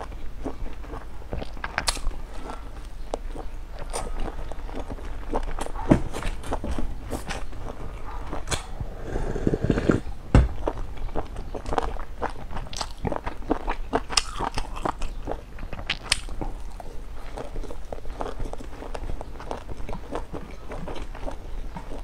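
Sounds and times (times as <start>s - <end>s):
person biting and chewing: 0.0s - 22.0s
dull thump: 10.3s - 10.6s.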